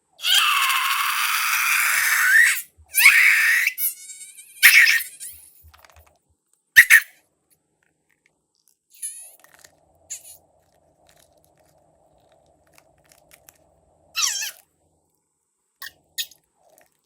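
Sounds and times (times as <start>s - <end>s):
air squealing out of balloon: 0.2s - 5.4s, 14.2s - 14.6s.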